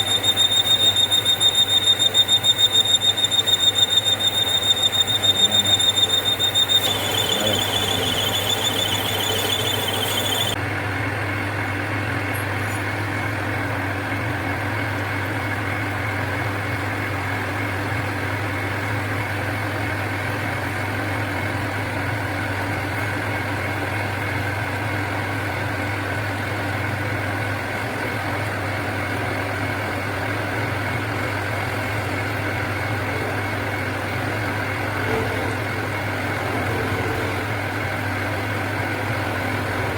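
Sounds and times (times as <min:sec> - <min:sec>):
high-pitched cutting squeal: 0:00.0 - 0:10.6
machine humming: 0:00.0 - 0:10.6.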